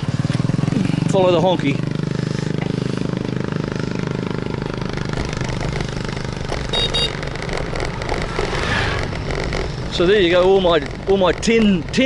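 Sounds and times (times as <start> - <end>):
motorbike engine running: 0.0 - 12.0
horn beeps: 6.7 - 7.2.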